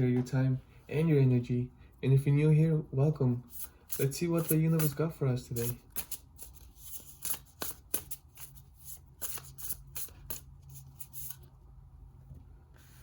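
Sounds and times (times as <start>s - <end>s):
cards being shuffled: 3.5s - 11.5s.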